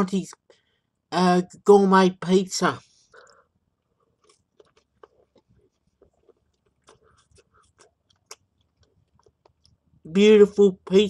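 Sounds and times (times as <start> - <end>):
person chewing food: 3.0 - 10.1.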